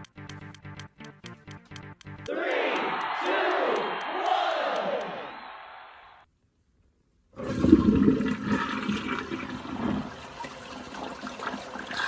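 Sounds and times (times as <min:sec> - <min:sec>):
toilet flushing: 0:07.4 - 0:12.0.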